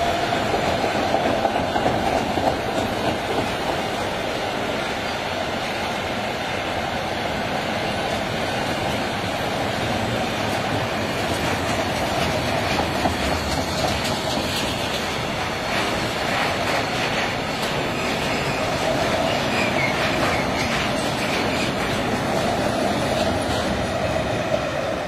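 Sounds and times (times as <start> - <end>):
freight train rumbling past: 0.0 - 25.0
wheels clicking over track: 10.0 - 24.6.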